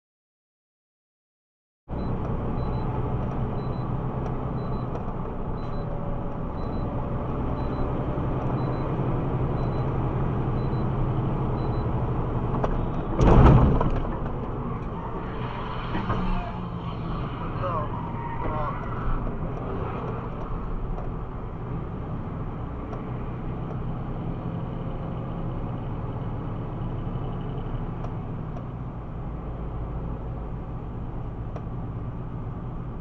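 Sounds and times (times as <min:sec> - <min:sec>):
road noise: 0:01.9 - 0:33.0
vehicle engine hum: 0:01.9 - 0:33.0
loud thump: 0:13.1 - 0:14.4.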